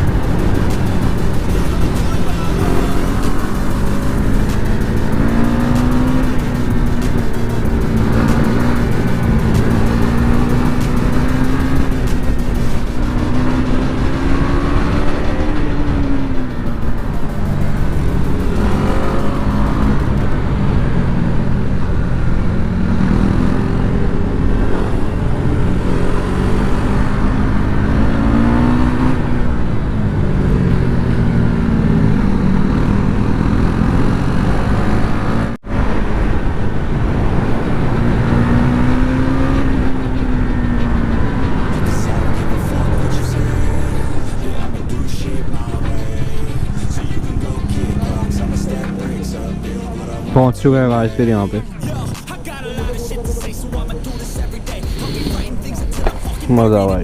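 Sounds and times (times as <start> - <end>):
wind noise: 0.0 - 44.7
motorcycle engine revving: 0.0 - 57.0.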